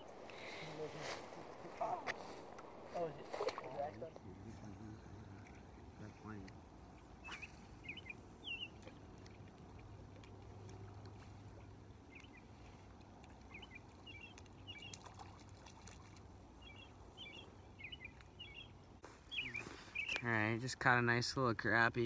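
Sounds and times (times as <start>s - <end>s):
short high bird chirps: 7.2s - 8.8s, 19.3s - 20.2s.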